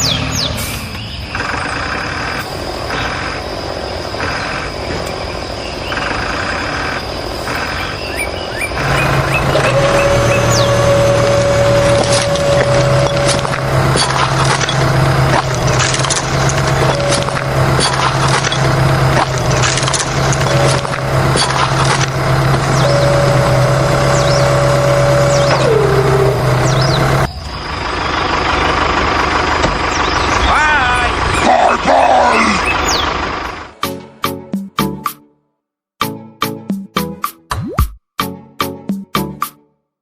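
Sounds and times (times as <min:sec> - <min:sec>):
bird chirps: 0:04.2 - 0:11.2, 0:22.6 - 0:27.8, 0:29.8 - 0:30.5, 0:32.4 - 0:33.2.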